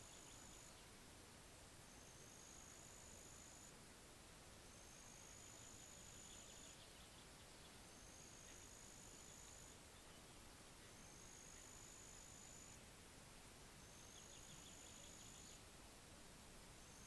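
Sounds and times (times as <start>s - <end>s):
soft background hiss: 0.0s - 17.0s
insect trill: 1.9s - 3.7s, 4.7s - 6.8s, 7.9s - 9.8s, 11.0s - 12.8s, 13.8s - 15.6s, 16.8s - 17.0s.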